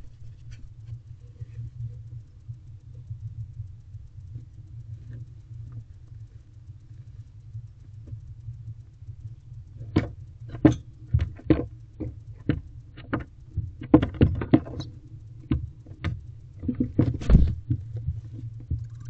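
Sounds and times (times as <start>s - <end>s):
knocks and scrapes in nest box: 0.0s - 1.8s, 16.6s - 18.8s
steady low hum: 0.0s - 19.0s.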